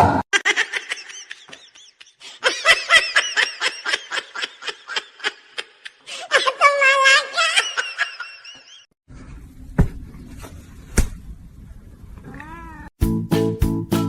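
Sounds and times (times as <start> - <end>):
cat meowing: 12.2 - 12.9
music with steady beat: 13.0 - 14.0.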